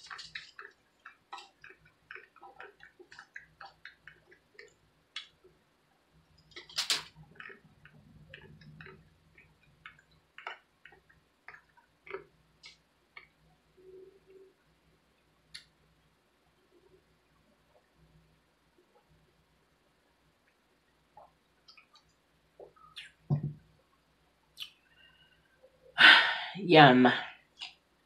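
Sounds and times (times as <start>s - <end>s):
chewing crispy noodles: 0.0s - 5.5s, 6.5s - 13.3s.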